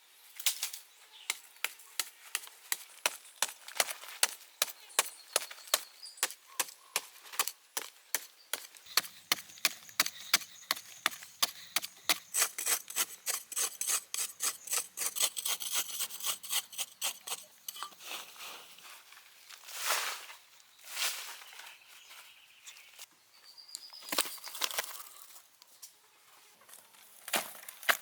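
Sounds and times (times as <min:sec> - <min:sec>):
hand saw cutting wood: 0:08.9 - 0:17.9.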